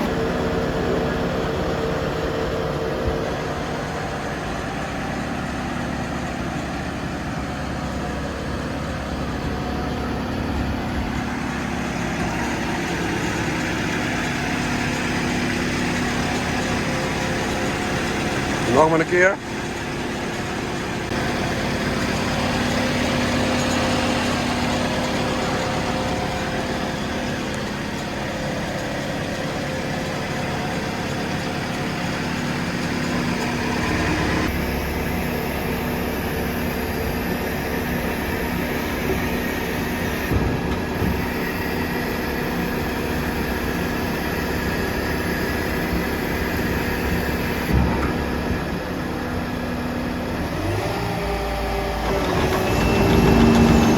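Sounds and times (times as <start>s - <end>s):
diesel engine humming: 0.0s - 53.9s.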